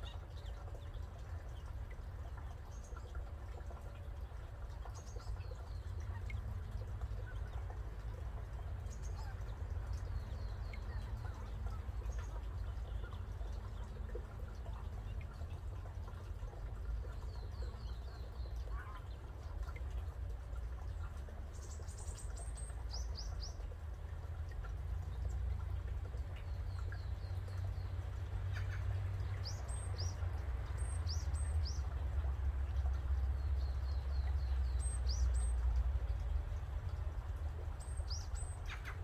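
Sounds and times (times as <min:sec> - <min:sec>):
small birds calling: 0:37.8 - 0:39.0.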